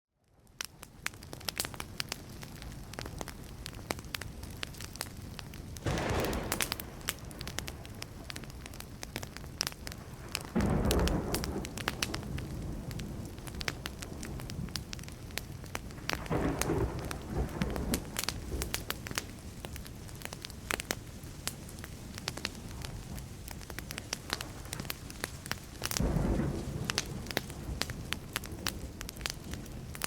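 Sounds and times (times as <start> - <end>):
wood fire crackling: 0.2 - 30.0
thunder claps: 5.8 - 19.5, 25.9 - 30.0.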